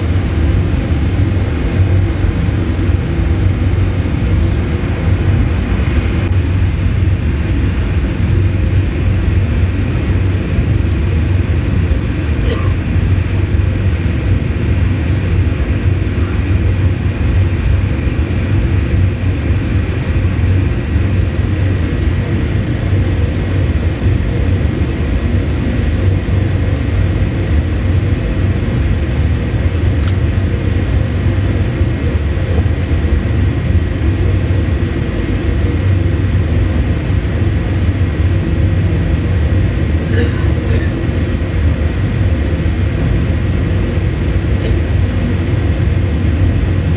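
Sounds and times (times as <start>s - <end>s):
airliner cabin engine rumble: 0.0s - 46.9s.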